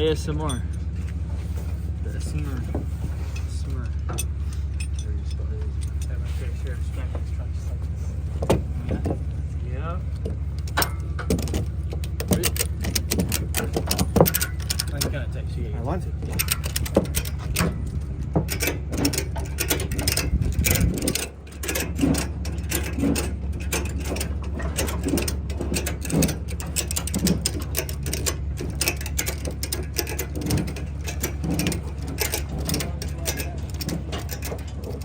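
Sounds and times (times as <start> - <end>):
low vehicle rumble: 0.0 - 35.0
rapid clicking rattle: 8.4 - 35.0.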